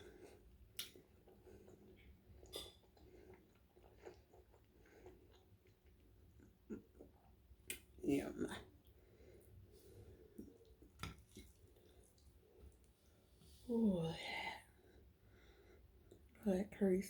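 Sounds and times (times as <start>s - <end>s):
close-up chewing: 0.0s - 8.0s, 8.6s - 13.5s.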